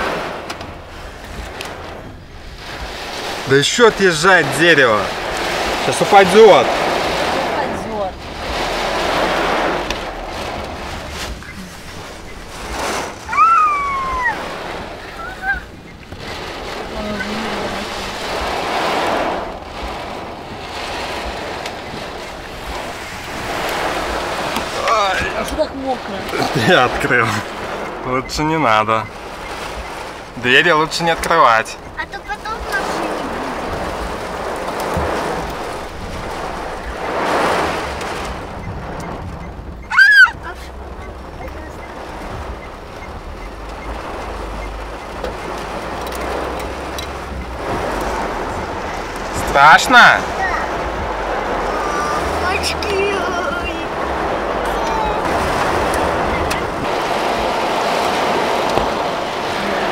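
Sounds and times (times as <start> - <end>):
storm wind and heavy rain: 0.0 - 59.9
short high cry: 13.3 - 14.4, 39.8 - 40.6.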